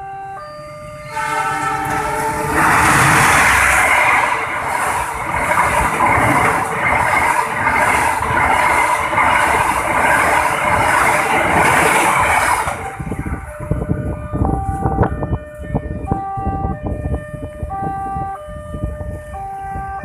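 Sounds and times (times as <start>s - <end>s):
train wheels rushing on rails: 0.9s - 15.3s.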